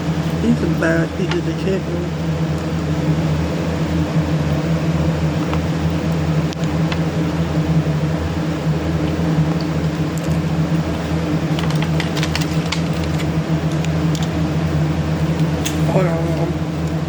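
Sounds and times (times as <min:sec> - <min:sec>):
fan motor humming: 0:00.0 - 0:17.0.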